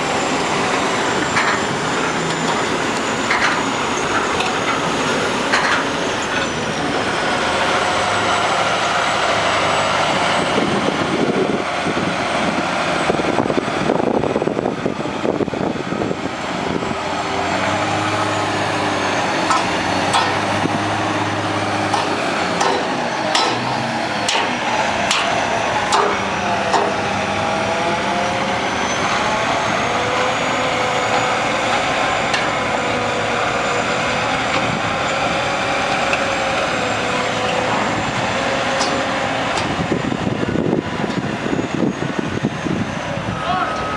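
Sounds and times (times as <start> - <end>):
diesel truck engine under load: 0.0 - 43.9
sharp metallic clanks: 19.4 - 20.6, 21.9 - 27.0, 38.7 - 39.8.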